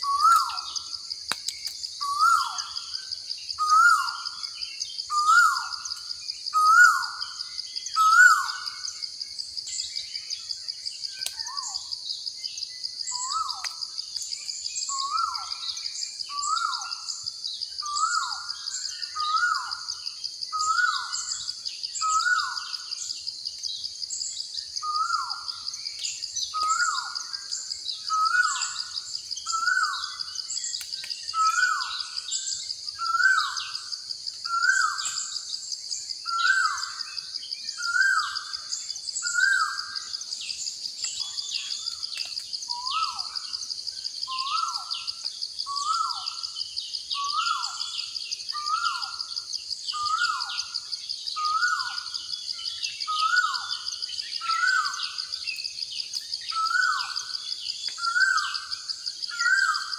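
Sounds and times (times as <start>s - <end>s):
small chirps: 0.0s - 6.9s, 8.0s - 12.0s, 20.6s - 47.0s
insect trill: 0.0s - 59.9s.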